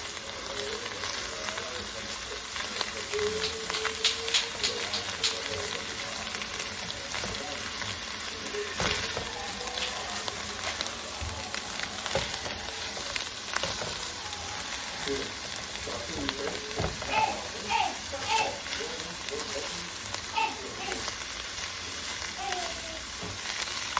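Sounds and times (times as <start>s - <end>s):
vegetables sizzling in a pot: 0.0s - 23.9s.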